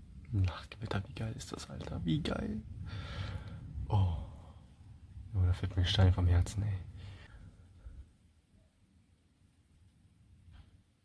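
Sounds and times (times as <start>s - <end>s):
man speaking: 0.3s - 2.7s, 3.9s - 4.4s, 5.4s - 6.9s.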